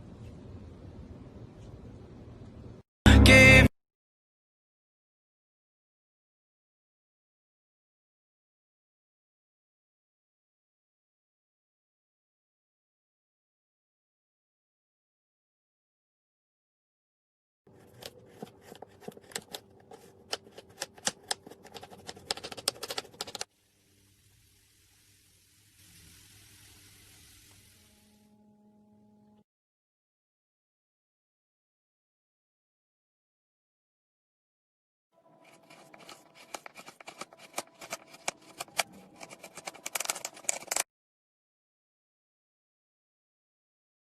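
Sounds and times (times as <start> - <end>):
sharp clicks and crackles: 17.9 - 23.5, 35.4 - 40.8
sharp clicks and taps: 19.0 - 23.5.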